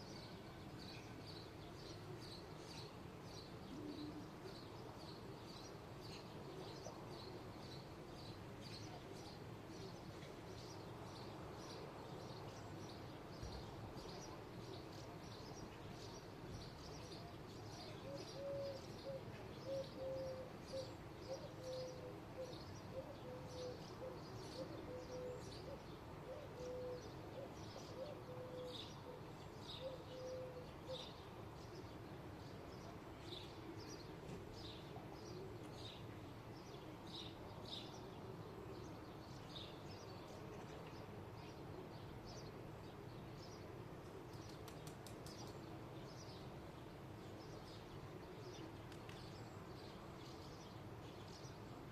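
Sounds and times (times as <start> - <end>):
bird cooing: 3.7 - 4.6, 17.9 - 31.1.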